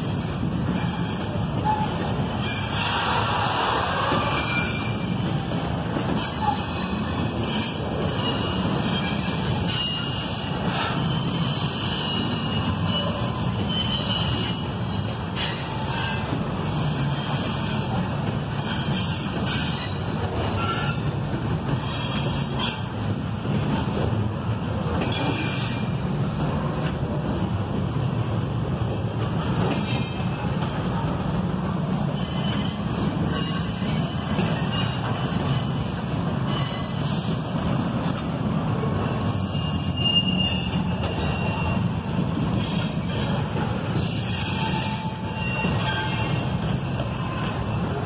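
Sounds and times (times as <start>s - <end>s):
steel wheels rumbling on rail: 0.0s - 48.0s
train clanks: 0.0s - 48.0s
high wheel squeals: 0.8s - 5.4s, 6.2s - 18.0s, 32.2s - 37.3s, 39.4s - 42.0s, 44.0s - 47.6s.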